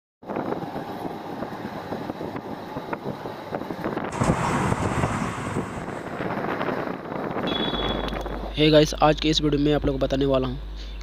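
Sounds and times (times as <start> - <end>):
wind buffeting microphone: 0.2 - 8.5
steady rumbling noise: 0.2 - 10.5.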